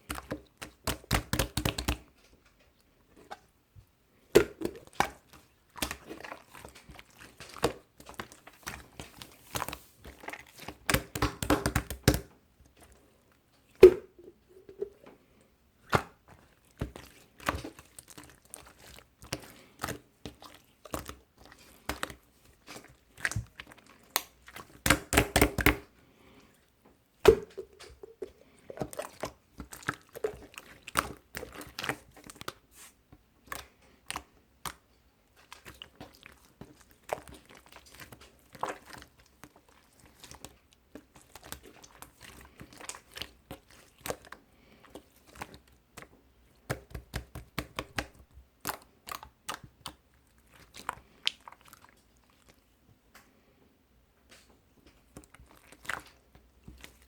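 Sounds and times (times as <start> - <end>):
close-up crackling and crunching: 4.2 - 15.1, 15.9 - 25.9, 27.2 - 32.6, 33.4 - 52.7, 54.4 - 57.0.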